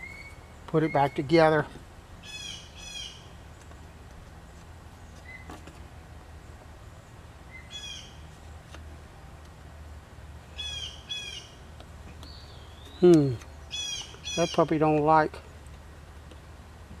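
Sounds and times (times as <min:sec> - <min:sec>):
bird chirping: 0:00.0 - 0:01.5, 0:02.2 - 0:05.6, 0:06.4 - 0:08.3, 0:10.5 - 0:15.7.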